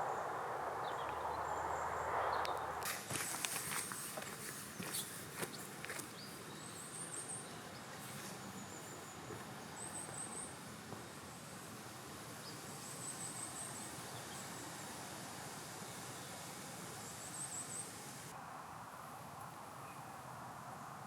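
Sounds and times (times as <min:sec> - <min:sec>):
leaves and wind hissing: 0:00.0 - 0:21.0
footsteps crunching on forest floor: 0:02.8 - 0:11.2.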